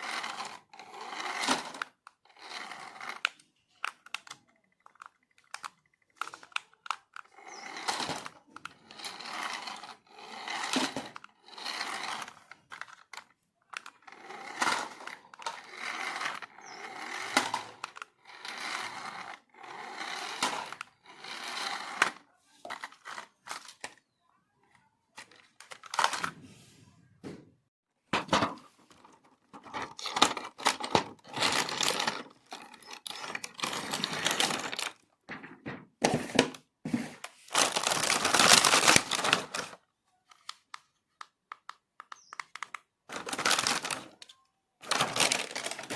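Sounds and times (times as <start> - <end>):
plastic and cardboard packaging crinkling: 28.9 - 40.7, 42.6 - 45.9.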